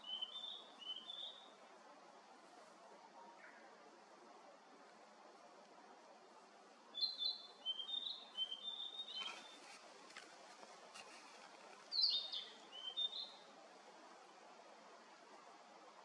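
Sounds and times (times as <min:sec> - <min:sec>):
songbird singing high notes: 0:00.0 - 0:01.5, 0:07.0 - 0:09.6, 0:11.9 - 0:13.4.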